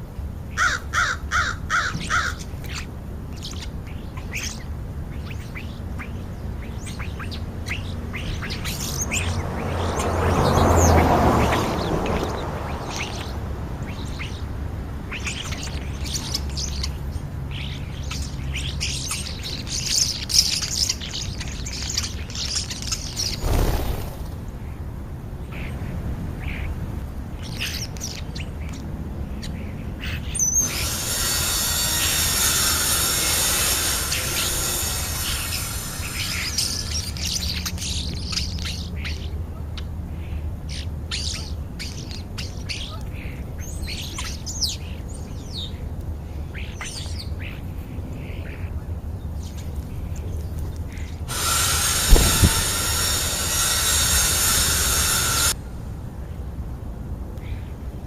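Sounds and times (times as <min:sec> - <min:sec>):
birds chirping: 0:00.0 - 0:55.6
steady hiss: 0:51.3 - 0:55.6.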